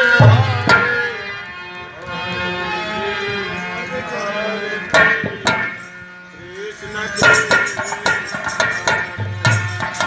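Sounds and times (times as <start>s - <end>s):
instrumental accompaniment: 0.0s - 10.0s
man singing devotional melody: 0.0s - 10.0s
sharp percussion hit: 0.2s - 1.2s.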